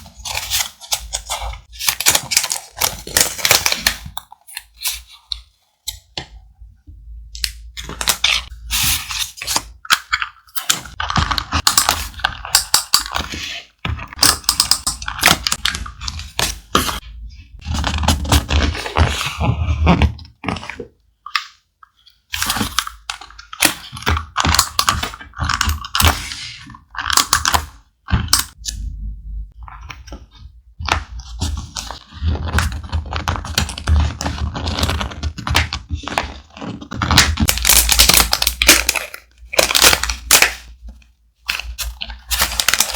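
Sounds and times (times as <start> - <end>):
thick paper rustling and crinkling: 41.5 - 42.9.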